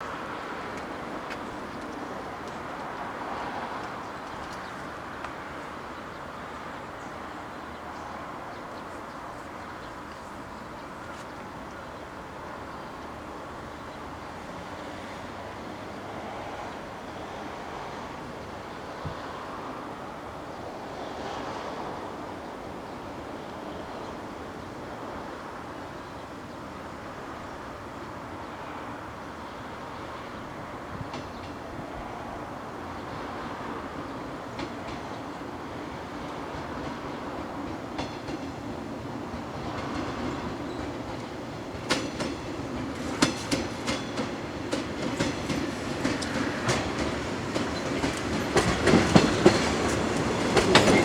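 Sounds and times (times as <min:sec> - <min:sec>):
train rumbling: 0:00.0 - 0:51.0
electric train rolling: 0:32.4 - 0:51.0.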